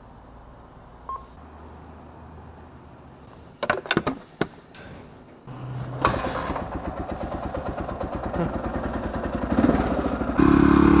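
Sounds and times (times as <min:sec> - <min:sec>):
dirt bike engine idling: 0:05.5 - 0:11.0.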